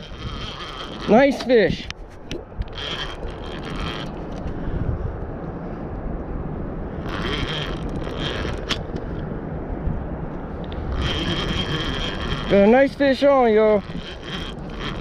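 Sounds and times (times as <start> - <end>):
fishing reel drag clicking: 0.0 - 4.5, 7.0 - 9.2, 10.6 - 15.0
steady low rumble: 0.0 - 15.0.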